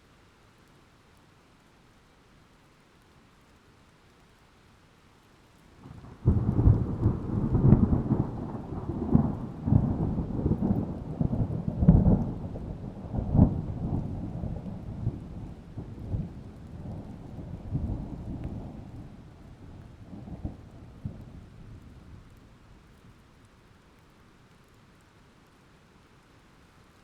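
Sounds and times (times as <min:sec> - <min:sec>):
rain: 0:00.0 - 0:27.0
thunder: 0:05.8 - 0:19.3.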